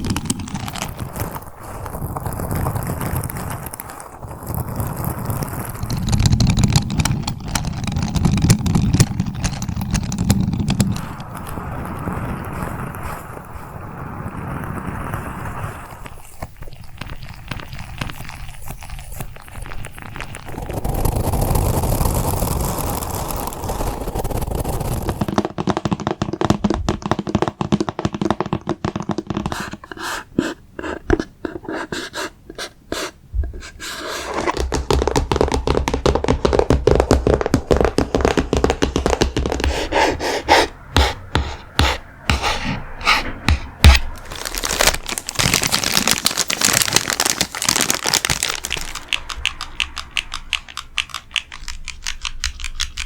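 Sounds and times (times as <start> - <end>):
rubbing or scratching noise: 0.0 - 53.0
fingers tapping on objects: 25.2 - 44.2, 48.3 - 53.0.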